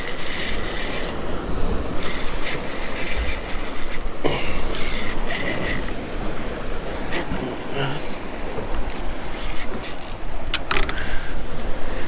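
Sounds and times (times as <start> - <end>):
fishing reel cranking: 0.0 - 7.4, 8.3 - 11.0.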